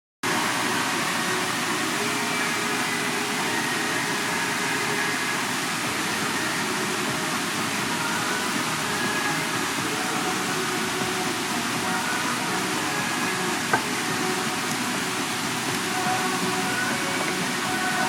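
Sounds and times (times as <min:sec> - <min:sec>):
waterfall rushing: 0:00.2 - 0:18.0.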